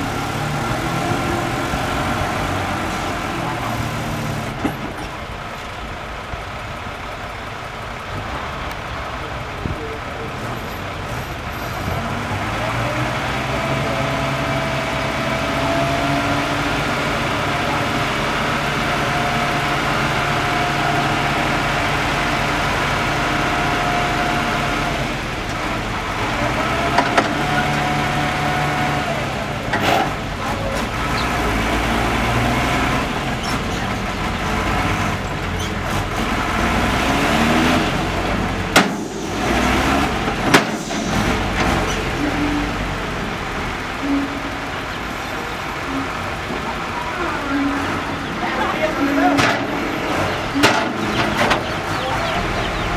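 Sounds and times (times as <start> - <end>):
dump truck engine running: 0.0 - 52.9.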